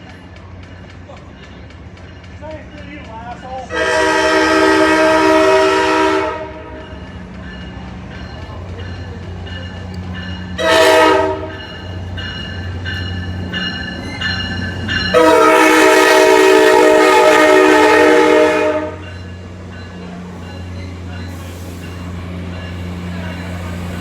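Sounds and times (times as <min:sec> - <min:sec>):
train horn blasts: 0:03.7 - 0:06.8, 0:10.6 - 0:11.6, 0:15.1 - 0:19.2.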